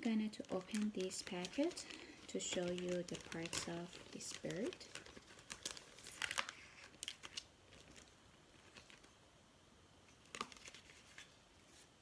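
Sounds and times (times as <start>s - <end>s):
paper crinkling and rustling: 0.3s - 9.2s, 10.1s - 11.9s.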